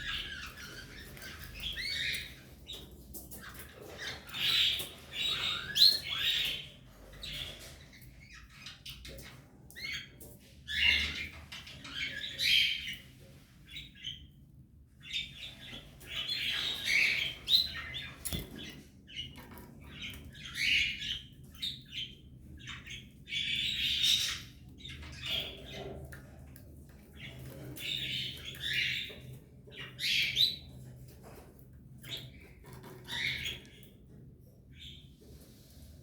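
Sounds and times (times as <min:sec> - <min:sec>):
canaries and nestlings calling: 0:00.0 - 0:36.0.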